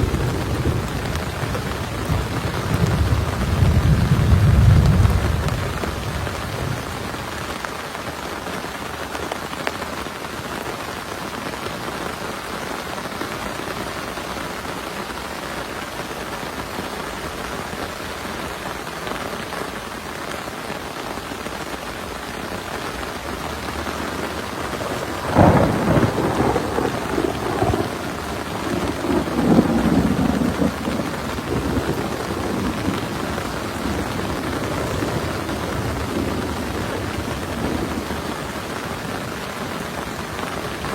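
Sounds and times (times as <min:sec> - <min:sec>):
thunder rumbling: 0:00.0 - 0:07.4, 0:23.5 - 0:40.9
heavy rain falling: 0:00.0 - 0:40.9.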